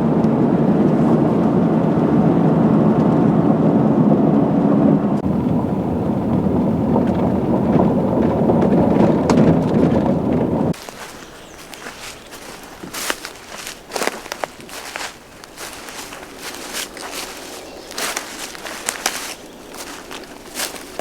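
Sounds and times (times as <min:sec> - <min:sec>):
vehicle engine and road rumble: 0:00.0 - 0:21.0.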